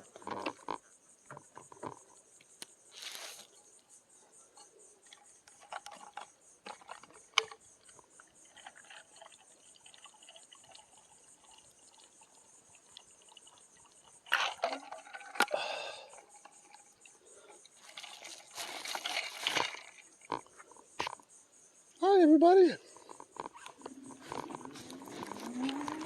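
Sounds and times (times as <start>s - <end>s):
insects chirping: 0.0s - 26.0s
water sloshing in bottle: 5.1s - 15.5s, 16.1s - 20.5s, 23.0s - 26.0s.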